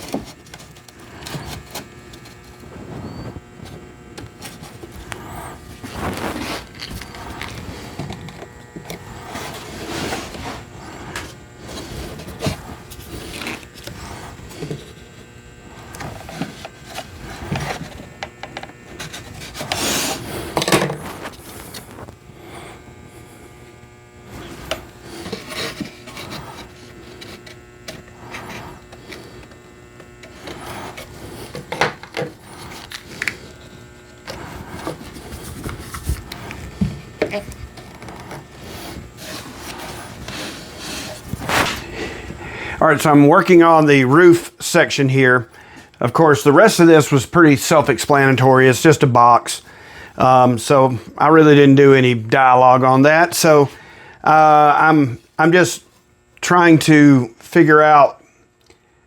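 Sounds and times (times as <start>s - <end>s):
wooden boards scraping: 0.0s - 22.7s, 24.3s - 29.6s, 30.2s - 43.8s.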